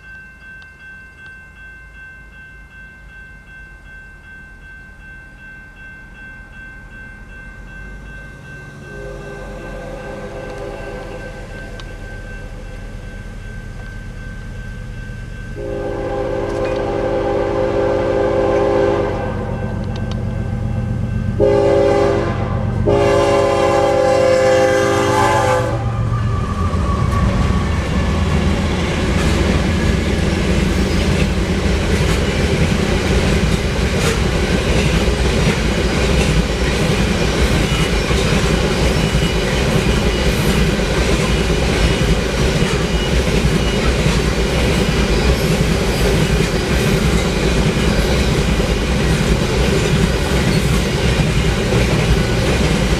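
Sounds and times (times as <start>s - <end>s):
locomotive rumble: 6.9s - 52.9s
locomotive air horn: 8.8s - 11.4s, 15.6s - 19.6s, 21.4s - 27.8s
train wheels clattering over rail joints: 29.0s - 52.9s.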